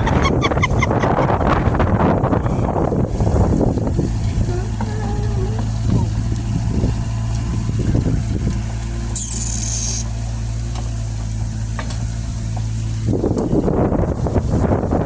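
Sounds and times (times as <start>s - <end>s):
short hiss: 9.2s - 10.1s.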